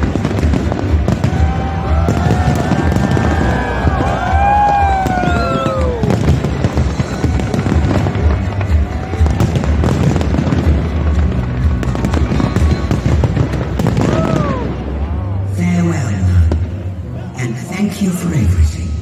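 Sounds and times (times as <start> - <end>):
whistling fireworks: 0.0 - 14.8
loud show music with bass: 0.0 - 14.9
fireworks crackling and banging: 0.0 - 15.1.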